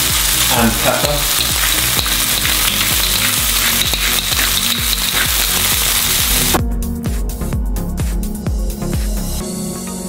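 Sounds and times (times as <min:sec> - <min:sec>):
chicken and mushrooms sizzling: 0:00.0 - 0:06.6.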